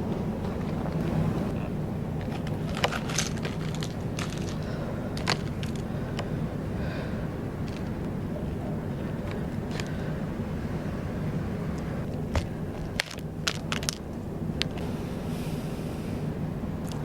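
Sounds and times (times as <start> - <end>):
steady low hum: 0.0 - 17.0
crunchy snacks being chewed: 2.6 - 5.8.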